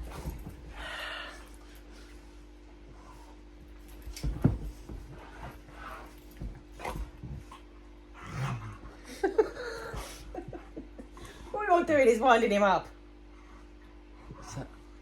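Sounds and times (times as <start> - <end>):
scuffling knocks: 3.8 - 7.5.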